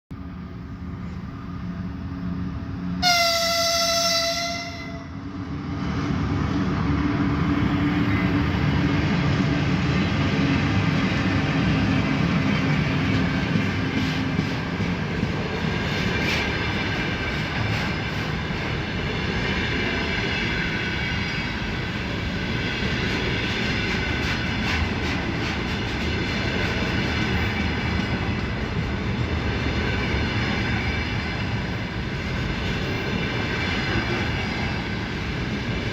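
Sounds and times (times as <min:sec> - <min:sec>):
train wheels rumbling on rail: 0:00.1 - 0:35.9
locomotive horn blast: 0:03.0 - 0:05.2.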